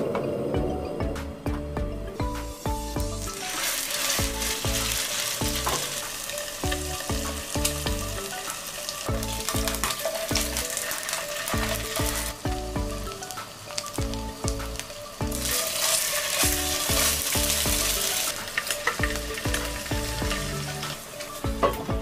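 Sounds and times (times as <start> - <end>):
background music with steady beat: 0.0 - 22.0
fish sizzling in hot oil: 2.4 - 22.0.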